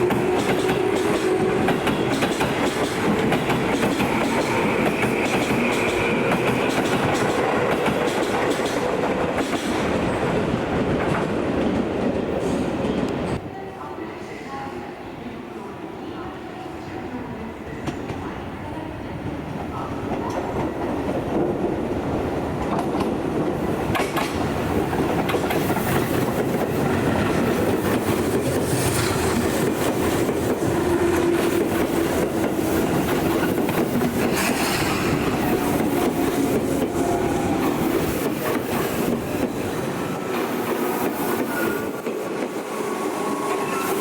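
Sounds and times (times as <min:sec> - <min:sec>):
train wheels clicking over rail joints: 0:00.0 - 0:10.0, 0:22.6 - 0:42.6
electric train passing: 0:00.0 - 0:12.4, 0:20.1 - 0:44.0.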